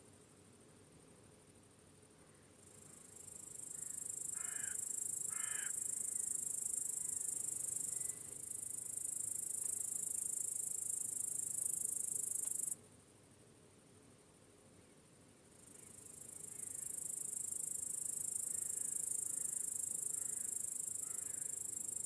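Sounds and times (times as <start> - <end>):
high-pitched insect trill: 2.6 - 12.8, 15.6 - 22.0
bird cawing: 3.8 - 5.8, 21.0 - 21.4.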